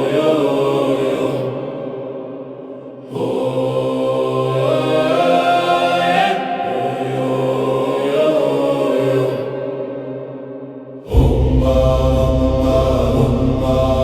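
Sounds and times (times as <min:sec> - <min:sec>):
voices chanting held notes: 0:03.0 - 0:09.9, 0:11.1 - 0:14.0.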